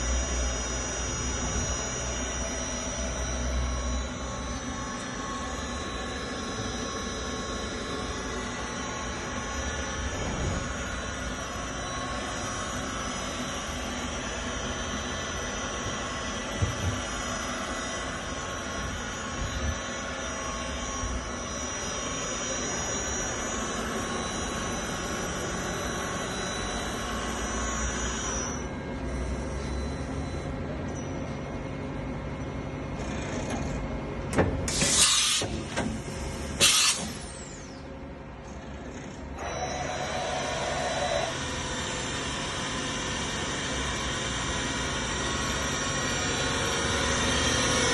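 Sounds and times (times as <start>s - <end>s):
machining center whine: 0.0s - 47.9s
compressed air hiss bursts: 34.7s - 35.5s, 36.6s - 37.2s.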